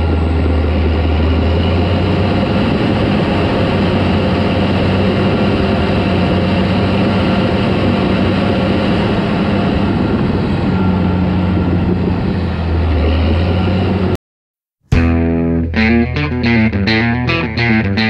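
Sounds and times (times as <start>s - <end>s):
bulldozer diesel engine running: 0.0s - 14.2s.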